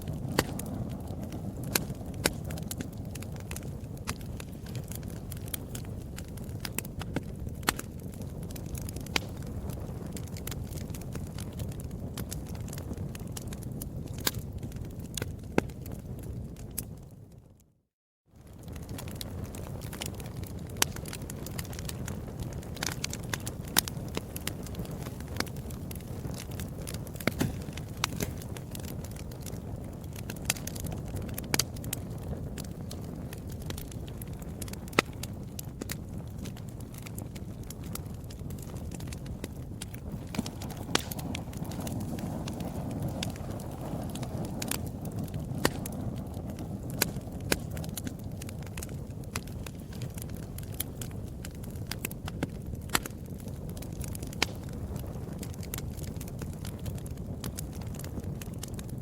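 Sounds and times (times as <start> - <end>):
wood fire crackling and popping: 0.0 - 17.7, 18.4 - 59.0
low fire rumble: 0.0 - 59.0.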